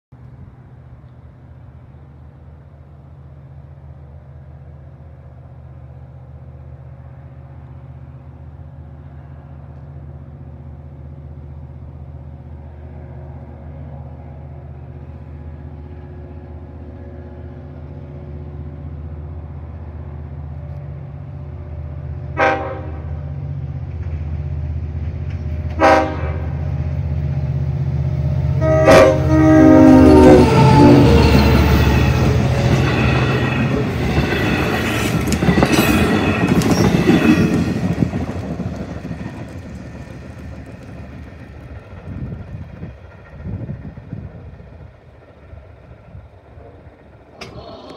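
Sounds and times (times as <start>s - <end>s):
train rumble: 0.2s - 47.9s
train horn blasts: 22.3s - 23.3s, 25.7s - 26.6s, 28.4s - 31.7s.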